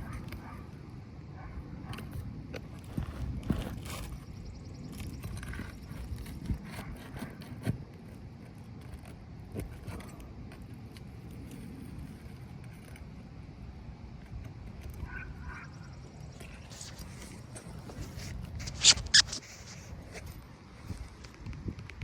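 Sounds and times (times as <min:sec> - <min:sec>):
hand tools scraping on shingles: 0:16.3 - 0:20.3.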